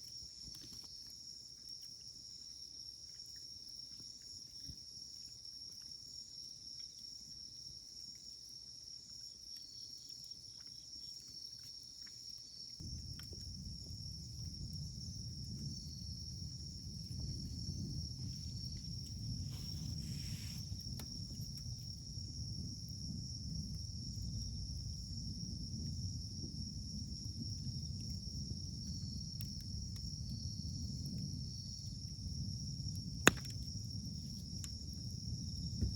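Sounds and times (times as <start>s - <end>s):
insects chirring: 0.0s - 35.9s
campfire crackling and popping: 12.8s - 19.4s, 32.9s - 34.9s.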